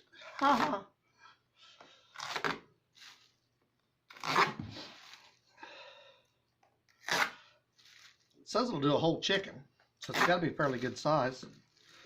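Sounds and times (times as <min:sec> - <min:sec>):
packing tape ripping off box: 0:02.2 - 0:03.3, 0:04.1 - 0:05.4, 0:06.9 - 0:08.2.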